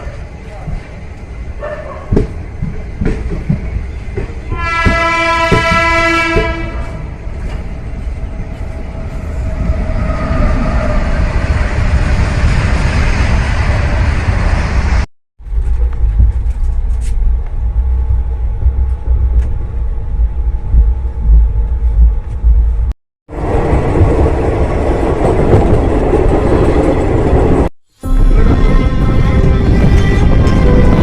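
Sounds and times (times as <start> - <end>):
train rumbling on rails: 0.0 - 31.0
train horn: 4.5 - 7.1, 28.0 - 31.0.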